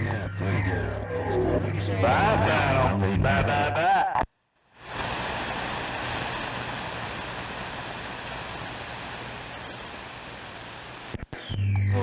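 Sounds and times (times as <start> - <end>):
radio static hiss: 4.7 - 11.4.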